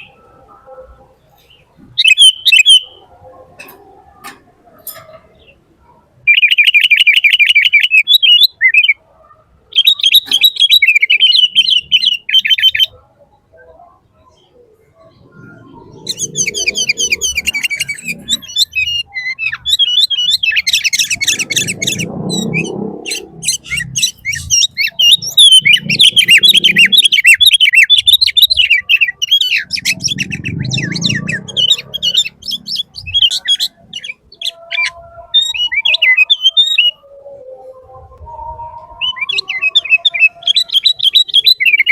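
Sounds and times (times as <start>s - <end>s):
birds chirping: 0.0s - 41.9s
low muffled noise: 12.8s - 19.0s, 20.3s - 27.0s, 36.8s - 40.4s.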